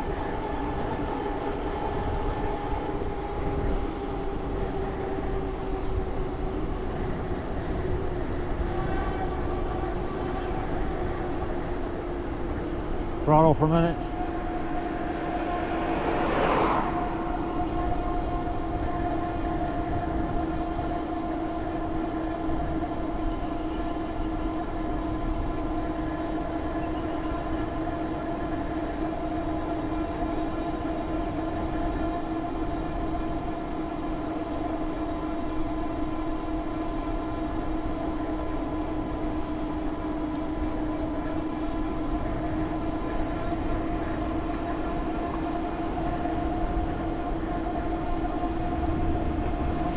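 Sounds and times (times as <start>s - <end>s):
road and wind rumble: 0.0s - 49.9s
whoosh of noise: 14.0s - 18.2s.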